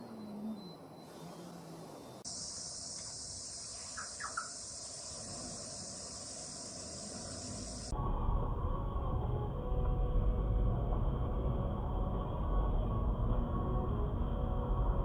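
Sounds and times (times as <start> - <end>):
high-pitched insect chirring: 0.3 - 7.9
low rumble: 7.1 - 15.0.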